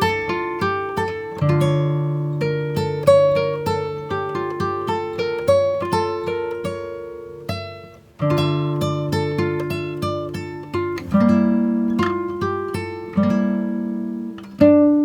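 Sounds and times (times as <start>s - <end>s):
acoustic guitar plucking: 0.0s - 15.0s.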